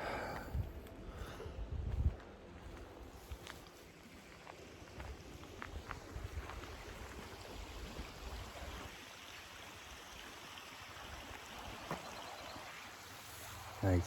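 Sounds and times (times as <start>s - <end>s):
footsteps: 1.8s - 6.7s.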